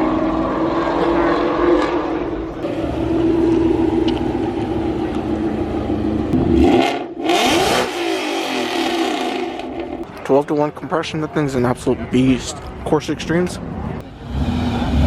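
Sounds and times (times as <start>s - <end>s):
car engine idling and revving: 0.0s - 10.2s, 13.7s - 15.0s.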